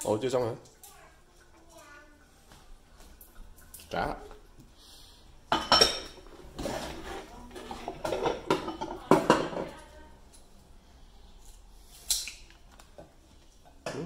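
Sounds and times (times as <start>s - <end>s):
ceramic bowls clinking in sink: 5.5s - 6.3s, 7.6s - 9.9s.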